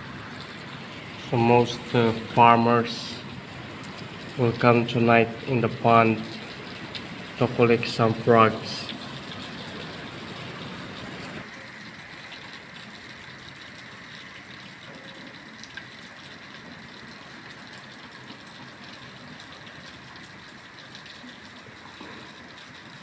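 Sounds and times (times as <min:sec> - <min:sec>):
heavy rain pouring: 0:00.0 - 0:11.6.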